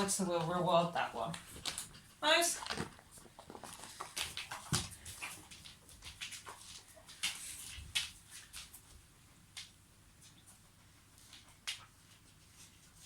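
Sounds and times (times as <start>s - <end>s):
dog claws and mouth clicking: 1.3s - 8.7s.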